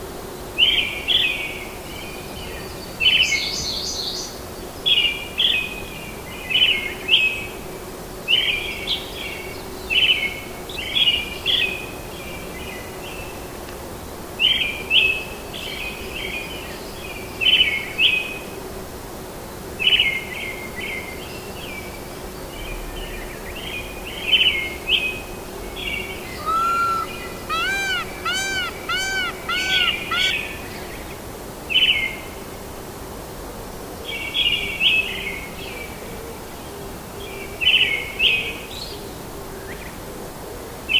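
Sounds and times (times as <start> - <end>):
ambient hiss: 22.2 - 30.3
faint hum: 22.2 - 30.4
bird ringing notes: 22.3 - 30.4
bird chirping phrases: 27.5 - 30.4.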